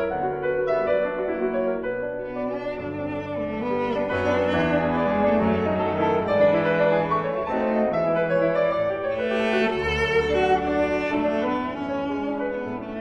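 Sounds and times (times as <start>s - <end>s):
bowed strings: 0.0s - 13.0s
piano: 0.0s - 13.0s.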